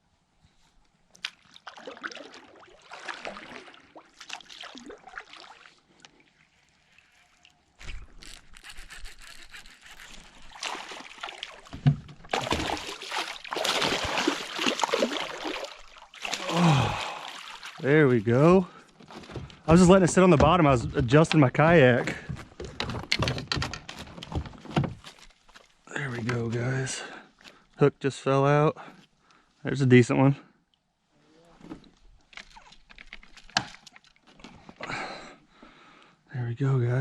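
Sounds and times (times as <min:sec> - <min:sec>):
water splashing around kayak: 0:01.2 - 0:08.4, 0:09.9 - 0:22.8.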